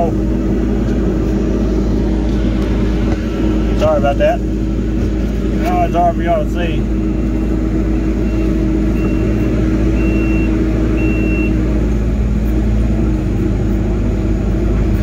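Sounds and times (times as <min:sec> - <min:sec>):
diesel engine running: 0:00.0 - 0:15.0
steady whine: 0:00.0 - 0:15.0
short high beeps: 0:10.0 - 0:11.6.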